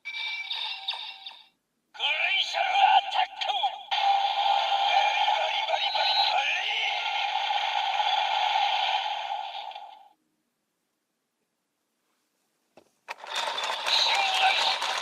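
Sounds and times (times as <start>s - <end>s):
toy speaker sound effects and music: 0.0s - 10.0s, 13.1s - 15.0s.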